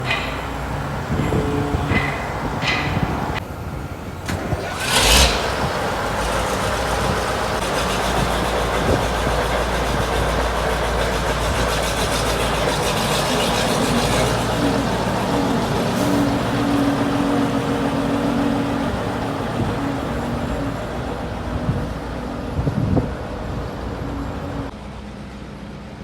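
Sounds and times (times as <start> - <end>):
knocks and clicks: 0.0 - 3.4
tractor diesel engine starting: 0.0 - 24.7.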